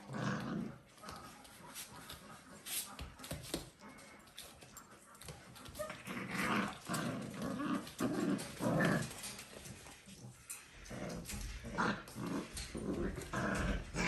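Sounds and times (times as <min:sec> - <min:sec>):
puppies growling: 0:00.0 - 0:02.4, 0:05.5 - 0:14.0.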